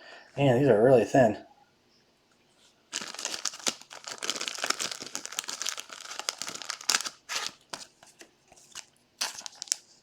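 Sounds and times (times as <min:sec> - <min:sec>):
wrappers crinkling: 0:02.9 - 0:08.0, 0:08.6 - 0:10.0.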